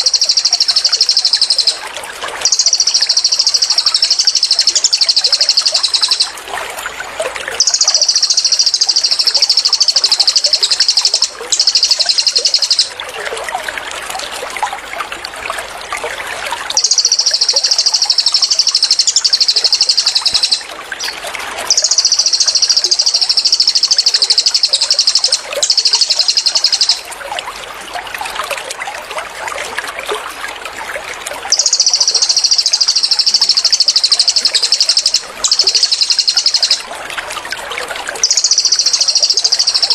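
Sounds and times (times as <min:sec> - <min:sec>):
songbird high-pitched trills: 0:00.0 - 0:06.4, 0:07.6 - 0:13.0, 0:16.7 - 0:27.1, 0:31.5 - 0:36.9, 0:38.2 - 0:39.9
trickling babbling water: 0:00.0 - 0:39.9.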